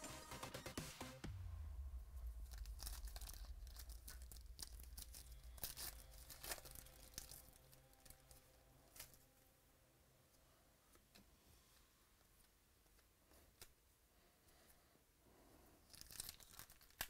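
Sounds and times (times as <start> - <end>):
cards crackling: 2.2 - 9.2, 15.9 - 17.0
wrapper crinkling and tearing: 2.2 - 9.2, 15.8 - 17.0.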